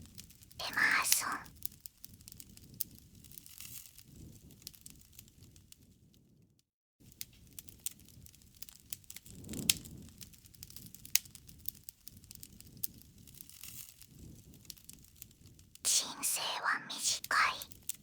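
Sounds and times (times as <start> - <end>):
campfire crackling and popping: 1.4 - 5.9, 7.0 - 15.8
burning wood rustle: 1.6 - 5.8, 7.0 - 15.8.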